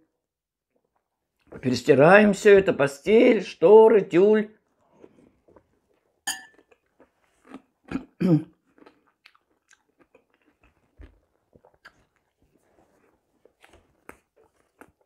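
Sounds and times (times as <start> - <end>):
chewing and mouth clicks: 4.7 - 15.0
spoon clinking on bowl: 6.3 - 6.6.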